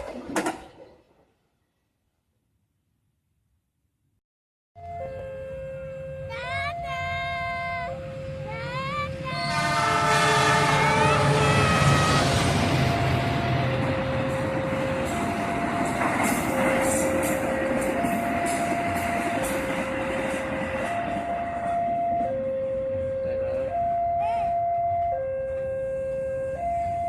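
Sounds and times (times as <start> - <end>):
wheels clattering over rail joints: 0.0 - 1.2, 12.5 - 22.2
train passing at speed: 5.7 - 27.0
train horn blast: 9.2 - 14.5
two-note warning alarm: 9.2 - 27.0.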